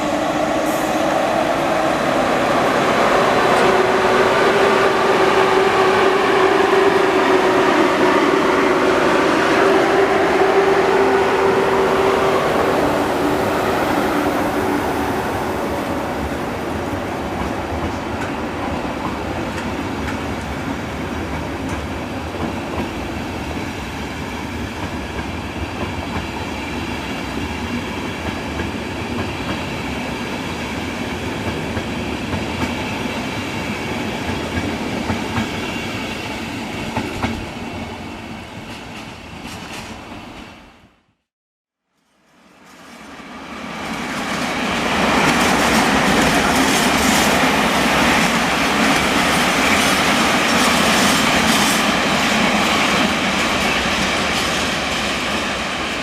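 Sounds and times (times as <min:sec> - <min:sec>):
train wheels clacking on rails: 0:11.0 - 0:23.6, 0:24.6 - 0:37.6, 0:43.8 - 0:56.0.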